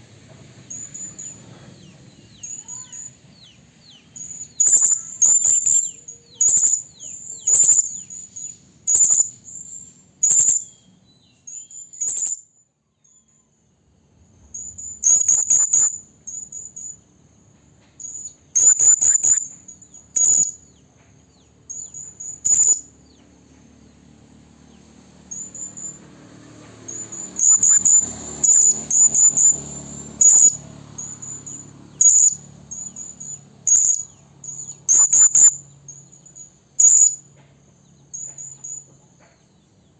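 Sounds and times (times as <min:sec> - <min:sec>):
parrot shrill calls: 0:02.4 - 0:03.1, 0:04.2 - 0:10.8, 0:14.6 - 0:16.9, 0:18.0 - 0:20.6, 0:21.7 - 0:22.9, 0:26.9 - 0:37.2.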